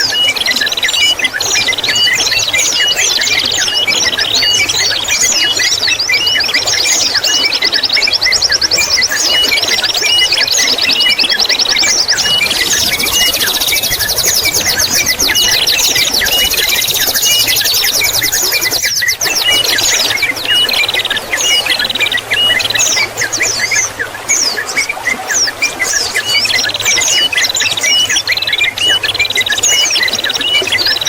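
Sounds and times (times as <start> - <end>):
songbirds singing: 0.0 - 31.0
trickle of water: 0.1 - 31.0
fast buzzy bird trill: 9.2 - 24.8.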